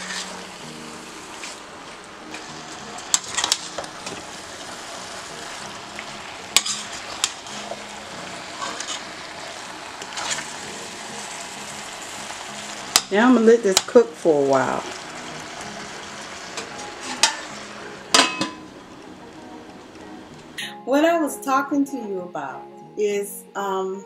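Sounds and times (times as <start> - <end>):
food sizzling in a pot: 0.0 - 20.6
metal spoon clinking against pot: 18.1 - 18.6.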